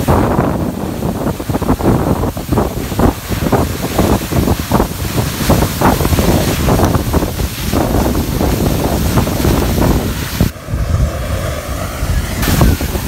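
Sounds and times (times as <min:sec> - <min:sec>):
waterfall rushing: 0:00.0 - 0:13.0
wind buffeting microphone: 0:00.0 - 0:13.0.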